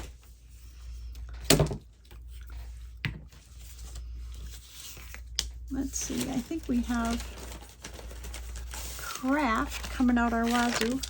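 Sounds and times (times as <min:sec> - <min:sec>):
paper scraps rustling: 0:03.4 - 0:11.0.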